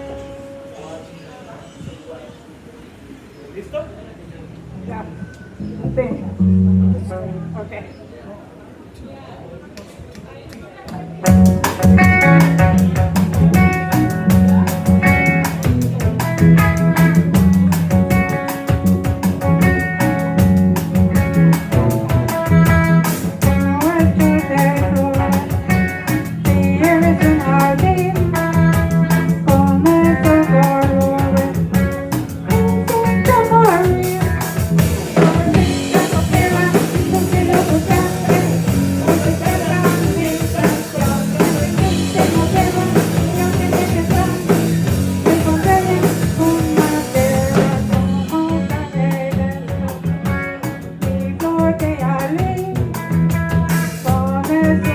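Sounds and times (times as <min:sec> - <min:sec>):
bass guitar: 0:00.0 - 0:01.0, 0:05.5 - 0:07.8, 0:11.2 - 0:54.9
electric guitar melody: 0:00.0 - 0:01.4, 0:05.7 - 0:07.7, 0:11.2 - 0:54.9
drum kit: 0:11.2 - 0:54.9.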